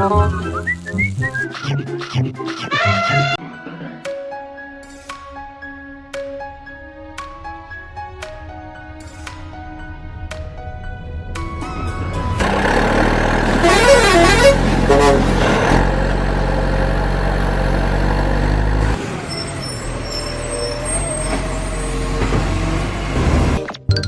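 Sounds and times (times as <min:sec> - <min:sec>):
truck engine running: 0:04.4 - 0:23.6
wavering horn-like tone: 0:11.5 - 0:15.3.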